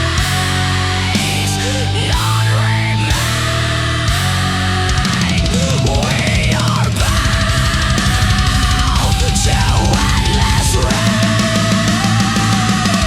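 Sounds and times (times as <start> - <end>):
distorted guitars: 0.0 - 13.0
gliding lead guitar line: 0.0 - 13.0
fast dense drumming: 4.1 - 13.0.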